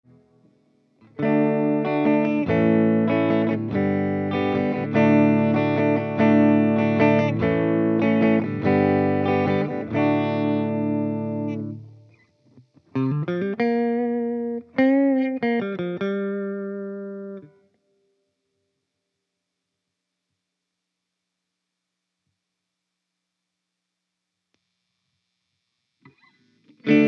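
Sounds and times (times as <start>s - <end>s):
electric guitar strumming chords: 1.0s - 17.6s, 26.1s - 27.0s.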